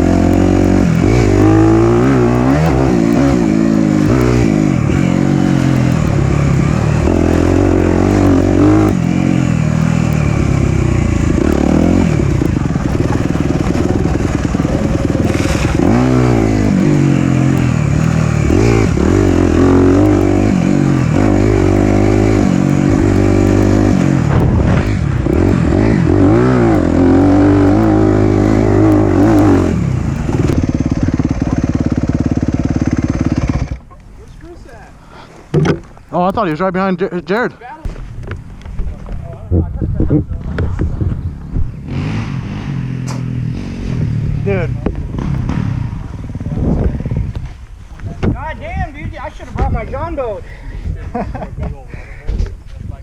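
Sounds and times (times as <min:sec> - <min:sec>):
dirt bike engine revving: 0:00.0 - 0:33.9, 0:40.9 - 0:47.6.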